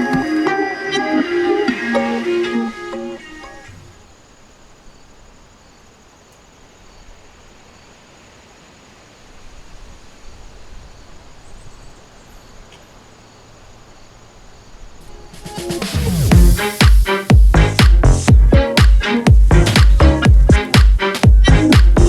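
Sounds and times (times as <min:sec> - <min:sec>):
high insect drone: 0:00.0 - 0:21.3
faint steady hiss: 0:00.0 - 0:22.0
low rumble: 0:16.0 - 0:16.6, 0:17.4 - 0:18.6.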